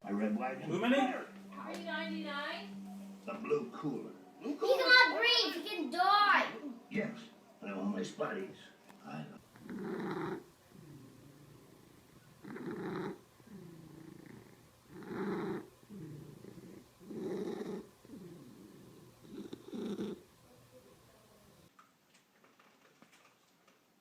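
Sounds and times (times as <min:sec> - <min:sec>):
cat purring: 0:09.1 - 0:21.7.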